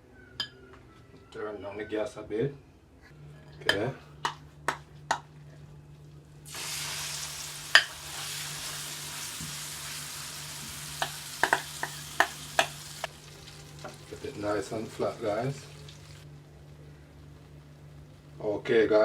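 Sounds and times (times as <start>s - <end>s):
batter sizzling in oil: 6.4s - 16.3s.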